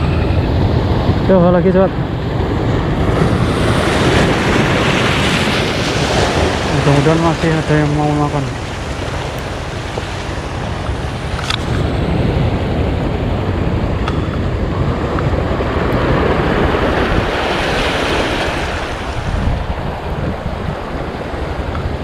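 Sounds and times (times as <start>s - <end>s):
sea waves washing against breakwater: 0.0s - 22.0s
wind buffeting microphone: 0.0s - 22.0s.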